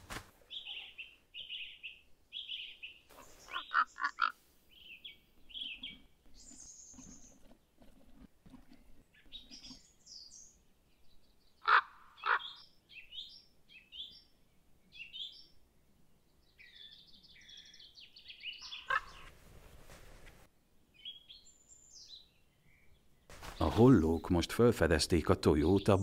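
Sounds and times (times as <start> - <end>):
songbird chirps: 0.4 - 26.0
harsh bird calls: 0.5 - 7.5, 9.1 - 14.2, 16.6 - 19.3.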